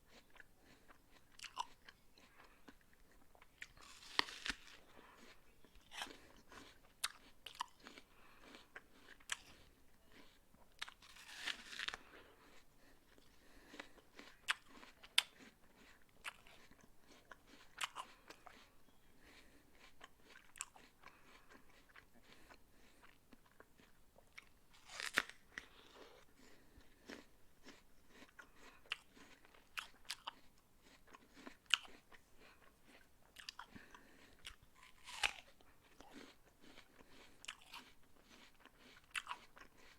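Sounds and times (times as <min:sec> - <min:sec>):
person crunching an apple: 0:00.1 - 0:39.9.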